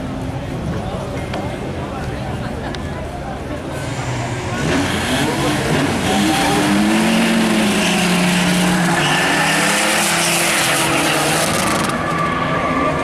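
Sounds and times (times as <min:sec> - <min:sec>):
heavy noise: 0:00.0 - 0:13.0
race car engine at high revs: 0:03.8 - 0:13.0.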